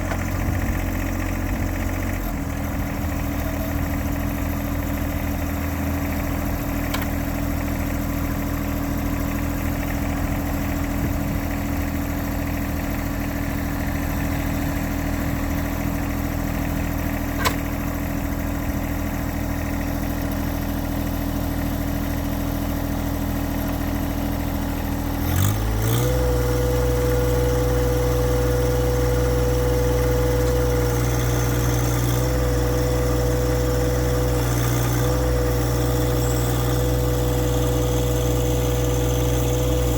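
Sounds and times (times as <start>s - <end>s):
diesel engine idling: 0.0s - 39.9s
brief click: 17.4s - 17.7s.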